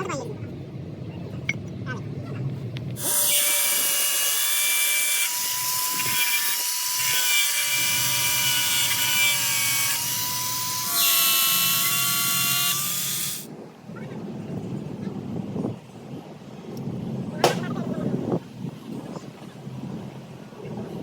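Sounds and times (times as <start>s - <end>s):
power tool whining: 3.0s - 13.5s.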